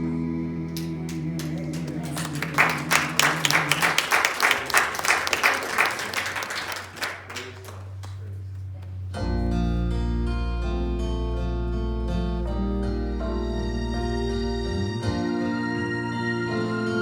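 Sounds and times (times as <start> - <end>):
held chord of backing music: 0.0 - 6.1, 9.2 - 17.0
audience applauding: 0.8 - 9.0.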